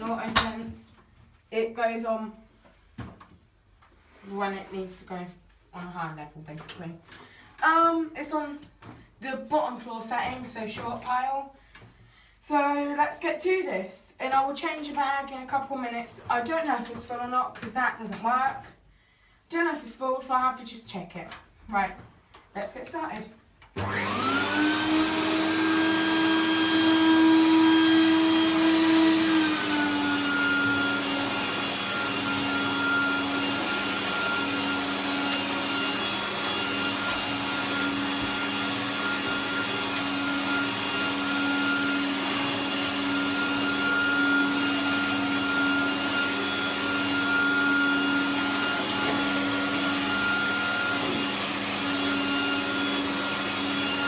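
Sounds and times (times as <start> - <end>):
upright vacuum cleaner running: 23.8 - 54.0.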